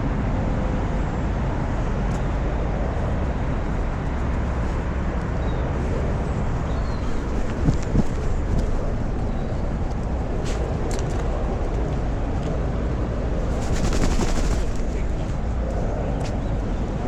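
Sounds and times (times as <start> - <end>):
low outdoor rumble: 0.0 - 17.0
rapid rattling clicks: 13.5 - 15.3.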